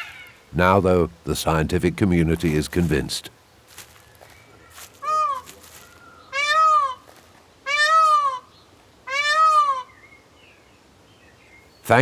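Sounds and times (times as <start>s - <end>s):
peacock wailing calls: 0.0s - 0.5s, 4.5s - 10.0s.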